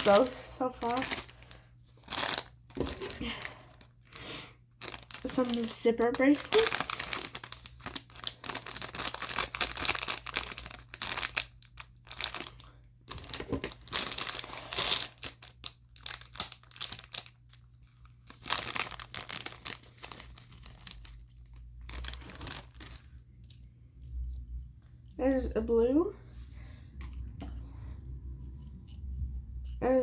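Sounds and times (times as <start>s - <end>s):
plastic packaging crinkling: 0.0s - 23.3s.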